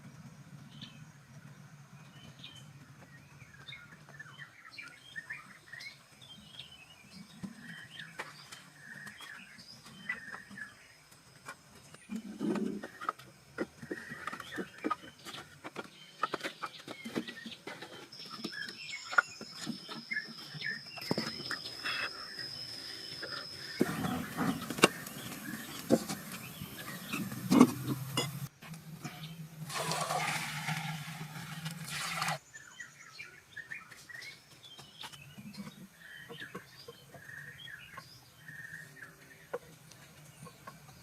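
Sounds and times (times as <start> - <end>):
birds chirping: 0.3 - 41.0.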